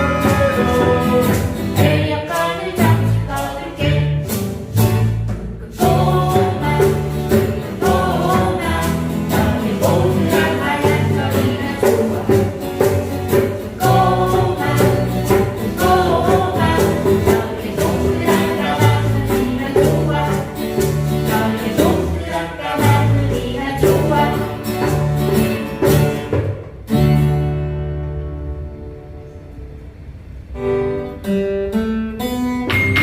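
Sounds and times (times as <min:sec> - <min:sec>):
group singing: 0:00.0 - 0:04.6, 0:05.6 - 0:25.5
percussive beat: 0:00.0 - 0:26.9, 0:32.6 - 0:33.0
bass notes: 0:00.0 - 0:31.7
instrumental accompaniment: 0:00.0 - 0:33.0.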